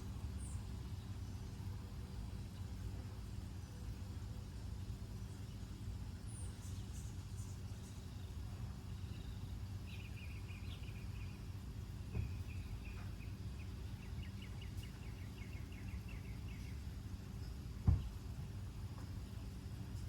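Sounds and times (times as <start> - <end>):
small bird chirping: 6.3 - 18.1
soft bump: 17.8 - 18.2.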